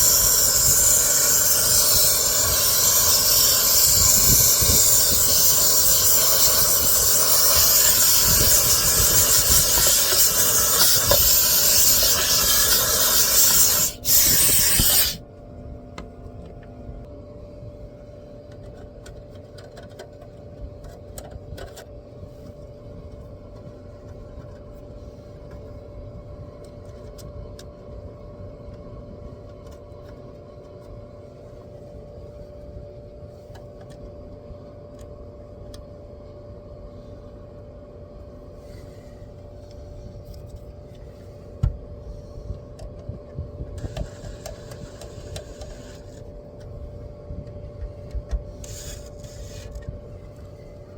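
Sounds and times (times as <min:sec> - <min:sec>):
hiss: 0:00.0 - 0:15.2, 0:43.8 - 0:46.2, 0:48.5 - 0:49.7
motor humming: 0:00.0 - 0:15.2, 0:43.4 - 0:50.9.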